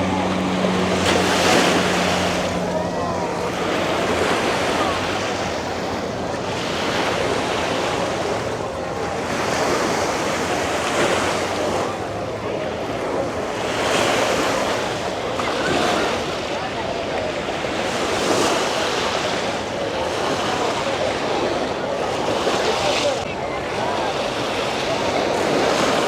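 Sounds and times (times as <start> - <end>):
faint voices: 0.0 - 26.0
ocean surf breaking: 0.0 - 26.0.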